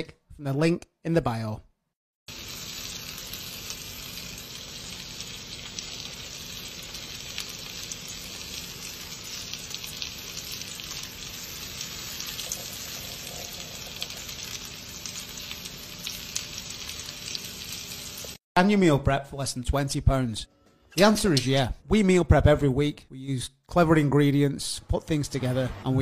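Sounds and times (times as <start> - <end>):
fish sizzling in hot oil: 2.3 - 18.4.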